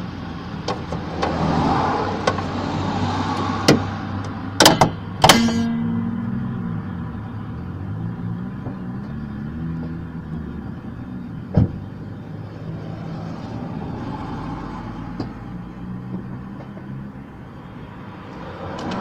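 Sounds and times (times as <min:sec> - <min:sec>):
sharp knock: 0:04.6 - 0:06.1.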